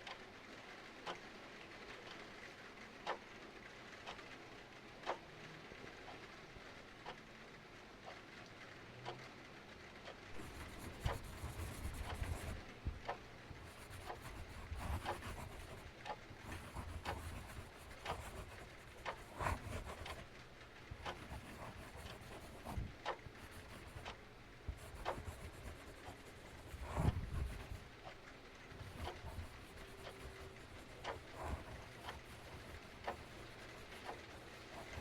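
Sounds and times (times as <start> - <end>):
clock ticking: 10.3 - 35.0.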